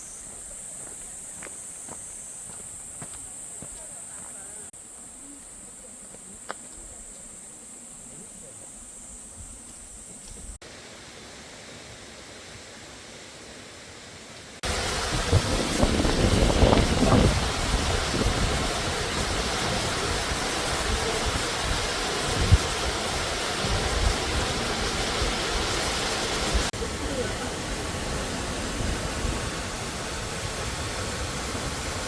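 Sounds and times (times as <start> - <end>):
falling water rushing: 10.6 - 32.0
rushing stream water: 13.5 - 32.0.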